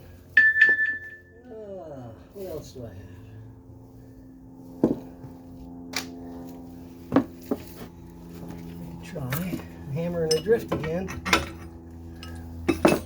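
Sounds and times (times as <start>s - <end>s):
steady low hum: 0.0s - 13.0s
metal hand tools clinking: 10.2s - 13.0s.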